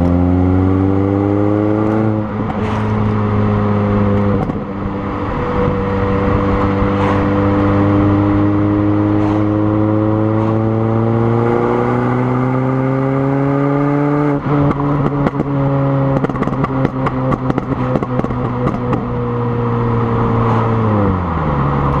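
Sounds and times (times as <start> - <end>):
car engine revving: 0.0 - 22.0
exhaust crackles and pops: 4.1 - 4.7, 14.6 - 19.2.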